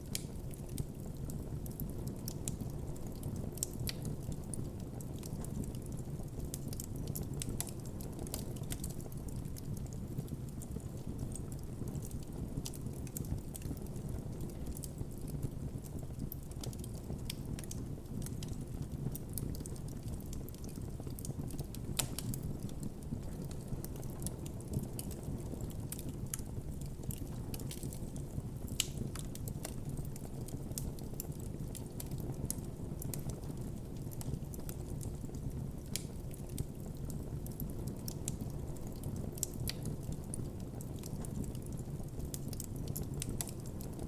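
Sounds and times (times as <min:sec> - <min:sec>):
burning wood crackling and popping: 0:00.0 - 0:44.0
campfire flames rumbling: 0:00.0 - 0:44.0.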